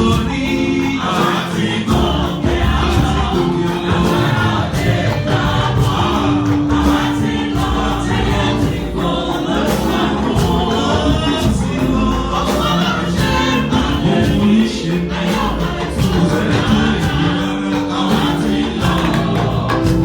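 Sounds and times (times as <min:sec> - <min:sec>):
choir singing gospel: 0:00.0 - 0:20.0
instrumental accompaniment with beat: 0:00.0 - 0:20.0.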